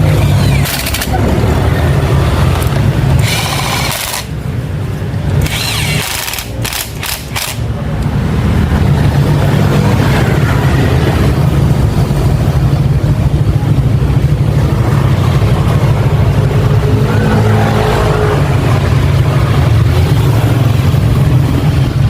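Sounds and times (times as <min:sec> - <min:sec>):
engine whine: 0:00.0 - 0:22.0
sharp clicks: 0:00.4 - 0:01.2, 0:05.4 - 0:08.2.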